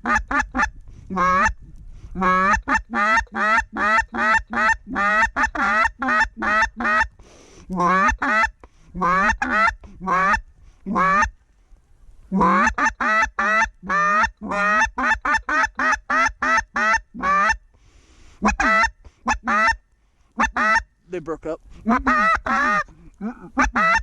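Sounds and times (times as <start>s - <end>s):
geese honking: 2.2s - 7.1s, 7.8s - 11.4s, 12.3s - 17.6s, 18.4s - 19.8s, 20.4s - 20.9s, 21.8s - 24.0s.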